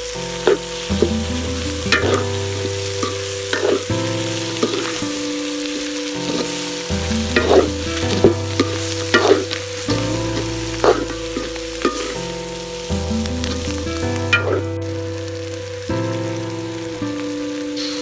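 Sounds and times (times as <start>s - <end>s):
chicken sizzling in a pan: 0.0s - 18.0s
wooden spatula scraping pan: 0.4s - 5.2s, 6.2s - 12.2s.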